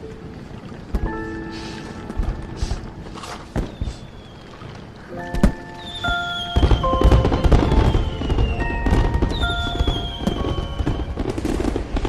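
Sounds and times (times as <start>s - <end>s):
background music: 0.0s - 4.3s, 5.0s - 12.0s
fireworks bursting and crackling: 0.9s - 12.0s.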